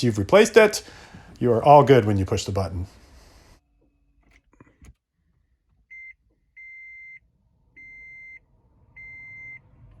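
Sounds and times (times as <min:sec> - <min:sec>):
car warning chime beeps: 0:05.9 - 0:09.8.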